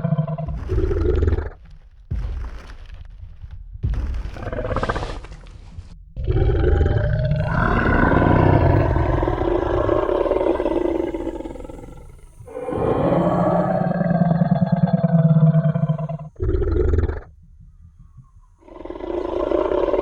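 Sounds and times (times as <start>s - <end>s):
dinosaur roar: 0.0s - 1.6s, 6.2s - 17.3s, 18.6s - 20.0s
low growl: 6.2s - 17.3s.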